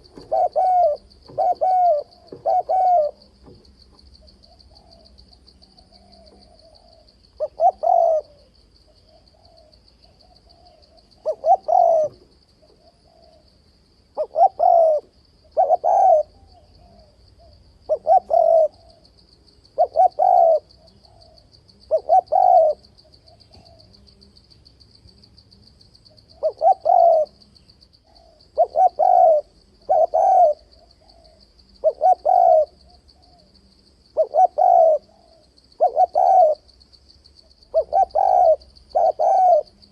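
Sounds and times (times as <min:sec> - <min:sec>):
dove cooing: 0:00.0 - 0:19.1, 0:19.7 - 0:24.1, 0:26.2 - 0:36.8, 0:37.4 - 0:39.9.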